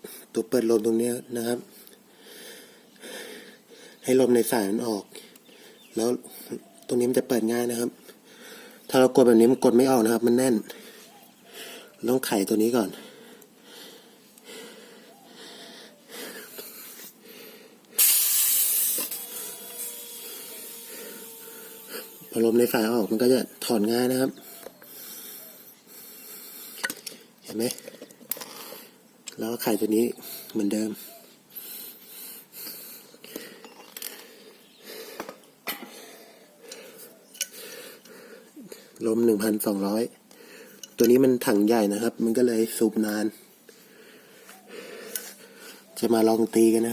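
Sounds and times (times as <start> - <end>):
high-pressure air hissing from hose: 18.0 - 23.3.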